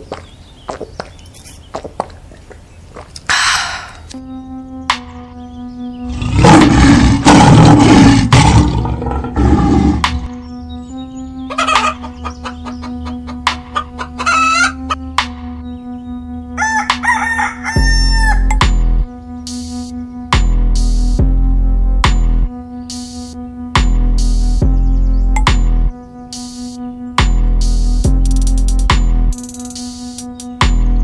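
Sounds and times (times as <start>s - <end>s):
droning background music: 4.1s - 31.0s
hens clucking: 11.5s - 15.1s
rooster crowing: 13.8s - 14.9s, 16.6s - 18.5s.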